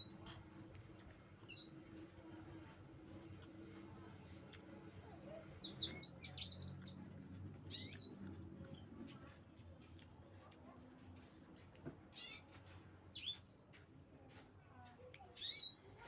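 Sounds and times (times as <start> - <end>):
eating clicks and smacks: 0.1 - 6.0, 6.9 - 12.7
small bird chirping: 1.4 - 2.6, 5.5 - 9.0, 12.1 - 14.6, 15.2 - 15.8.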